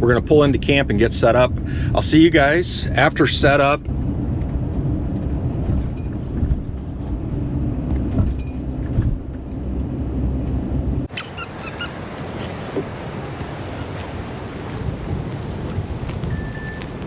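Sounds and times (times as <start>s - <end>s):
vehicle engine running: 0.0s - 11.1s
wind buffeting microphone: 0.0s - 17.0s
short high squeaks: 11.1s - 12.6s.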